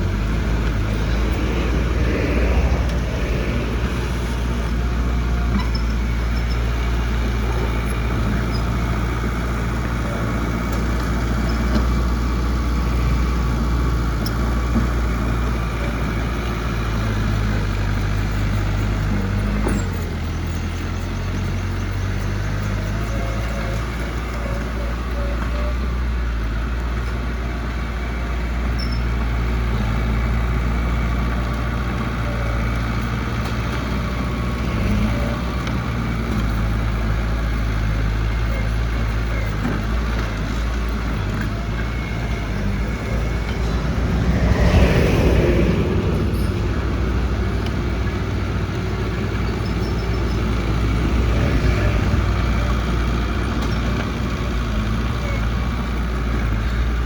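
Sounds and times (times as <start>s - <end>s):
loud rush: 0.0s - 5.6s, 41.9s - 48.8s
diesel engine running: 0.0s - 57.0s.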